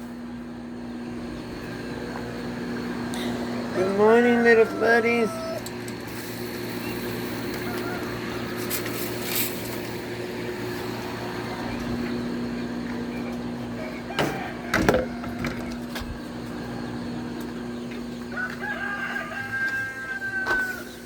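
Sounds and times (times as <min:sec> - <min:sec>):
steady low hum: 0:00.0 - 0:21.0
chickens clucking: 0:00.3 - 0:21.0
rooster crowing: 0:01.5 - 0:09.4, 0:10.2 - 0:12.8, 0:13.5 - 0:16.0, 0:18.1 - 0:21.0.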